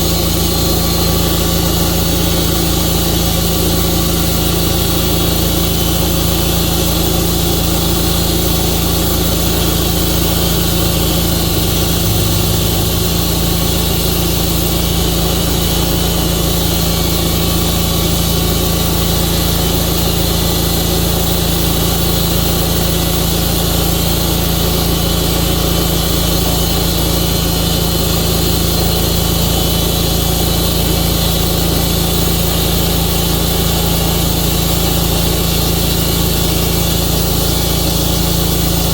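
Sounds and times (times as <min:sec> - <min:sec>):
sawmill engine running: 0:08.5 - 0:20.4.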